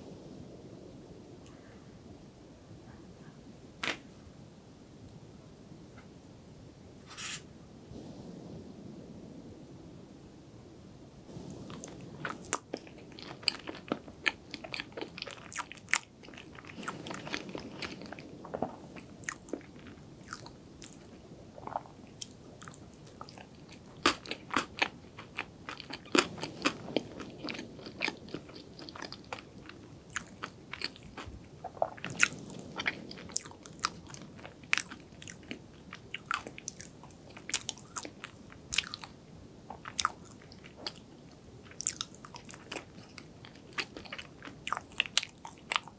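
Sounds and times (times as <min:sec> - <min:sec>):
chewing soft cake: 0:11.4 - 0:45.9.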